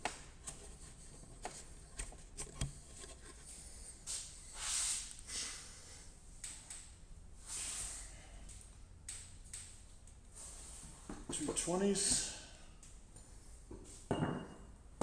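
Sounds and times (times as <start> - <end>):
scraping rustling noises: 0.4 - 5.1.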